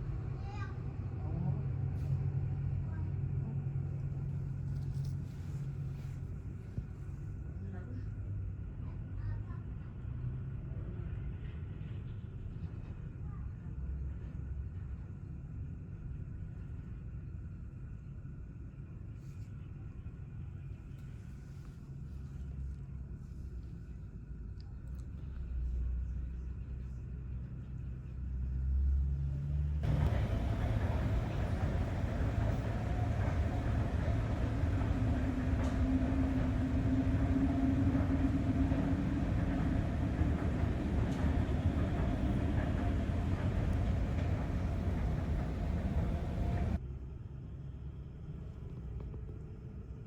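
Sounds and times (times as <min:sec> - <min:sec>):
jet airliner engines running: 0:29.8 - 0:46.8
low rumble: 0:29.8 - 0:46.8.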